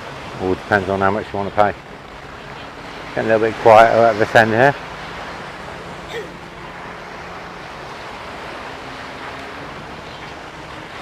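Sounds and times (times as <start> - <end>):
surf washing onto sand: 0.0 - 11.0.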